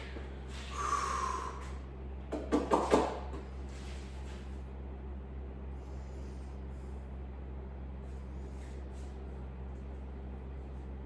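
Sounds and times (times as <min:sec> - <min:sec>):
sharp exhale of effort: 0:00.5 - 0:01.8.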